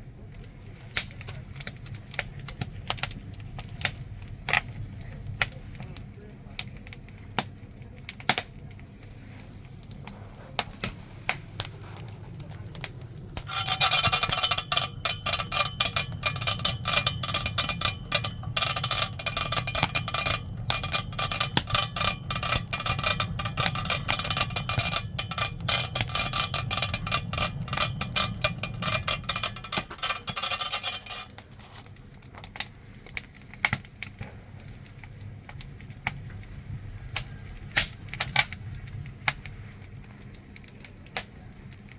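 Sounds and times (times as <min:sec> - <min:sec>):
hand-cranked blower whirring: 0:13.4 - 0:31.3.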